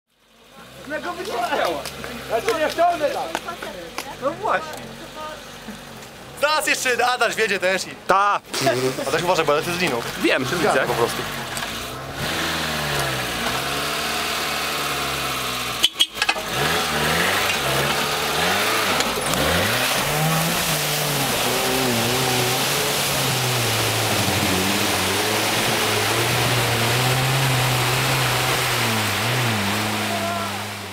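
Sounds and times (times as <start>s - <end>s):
car engine revving: 8.5s - 30.9s.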